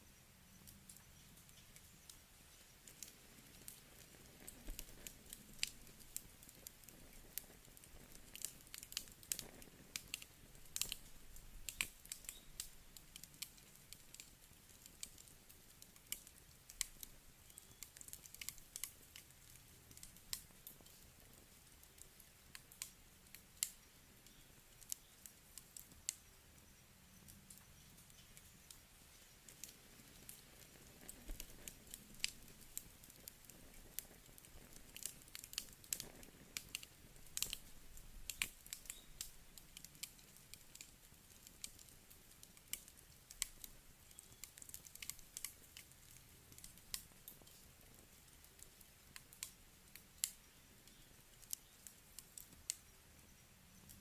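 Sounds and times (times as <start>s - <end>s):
campfire crackling: 0.0s - 54.0s.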